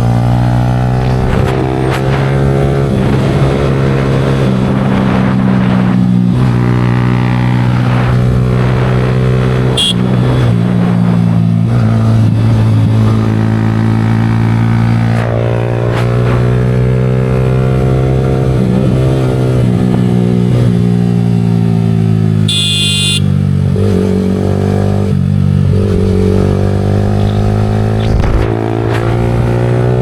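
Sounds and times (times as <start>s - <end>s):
motorcycle engine running: 7.9s - 11.7s, 21.2s - 24.0s.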